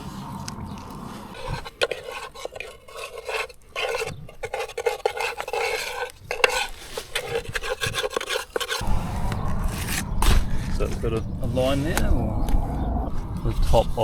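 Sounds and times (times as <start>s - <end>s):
metal scraping and clinking in bowl: 1.3s - 10.4s.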